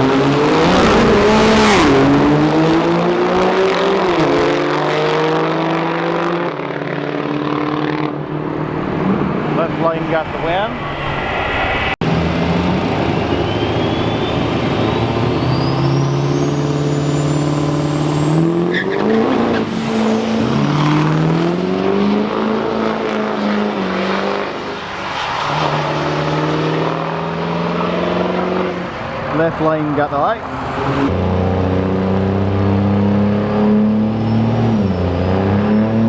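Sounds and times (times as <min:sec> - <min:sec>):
drag racing truck engines: 0:00.0 - 0:36.0
high whine climbing in pitch: 0:07.4 - 0:32.6.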